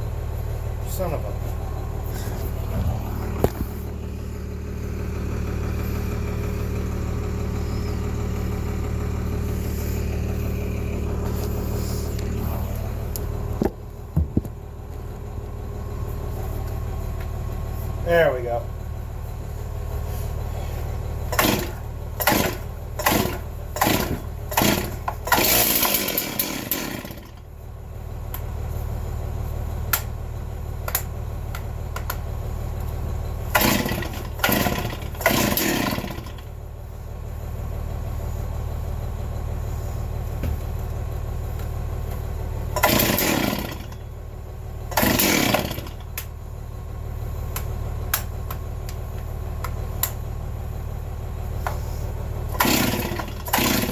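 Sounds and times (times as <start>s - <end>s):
steady low hum: 0.0s - 24.4s
chainsaw engine sputtering: 0.8s - 13.6s, 20.1s - 27.5s, 30.8s - 36.7s, 41.5s - 46.3s, 51.5s - 53.9s
starter rope pulls: 20.0s - 27.4s, 33.4s - 36.5s, 42.1s - 44.2s, 44.9s - 46.3s, 51.6s - 53.9s.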